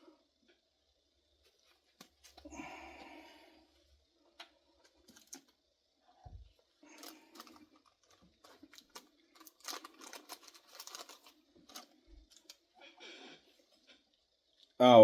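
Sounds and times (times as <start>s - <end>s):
small objects clicking: 7.0s - 12.6s.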